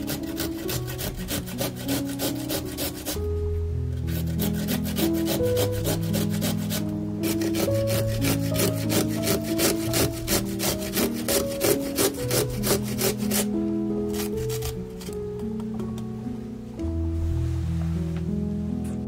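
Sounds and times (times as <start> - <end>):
carrot rasping on metal grater: 0.0 - 3.2, 4.0 - 13.5, 14.1 - 15.1
soft music with held notes: 0.0 - 19.0.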